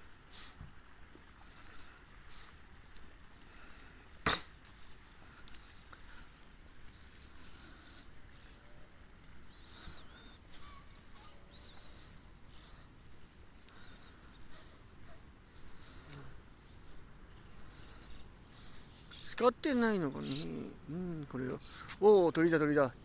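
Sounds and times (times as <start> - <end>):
faint background noise: 0.0 - 23.0
high bird chirps: 9.5 - 12.7.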